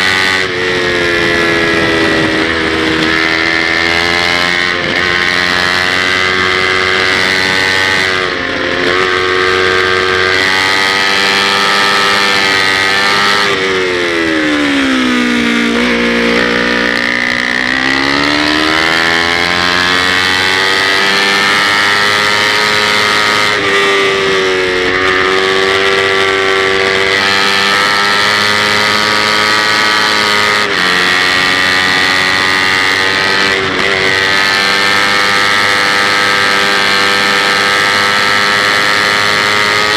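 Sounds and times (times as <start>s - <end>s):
motorcycle engine at high revs: 0.0s - 39.9s.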